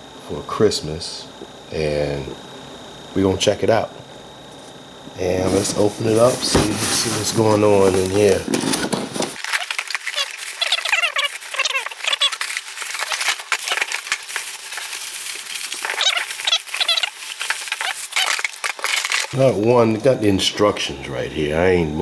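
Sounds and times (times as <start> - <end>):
packaging rustling and crackling: 5.4 - 19.4
packing material squeaking: 5.4 - 19.5.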